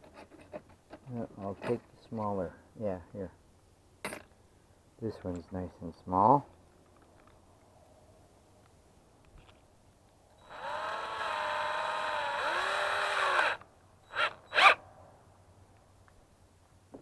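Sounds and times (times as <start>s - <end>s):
electric drill motor whine: 10.4s - 14.8s.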